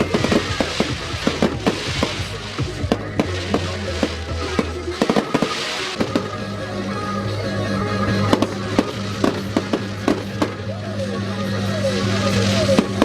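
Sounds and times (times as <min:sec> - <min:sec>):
fireworks bangs and pops: 0:00.0 - 0:06.4, 0:08.3 - 0:10.7, 0:11.9 - 0:13.0
background music with bass: 0:00.0 - 0:13.0.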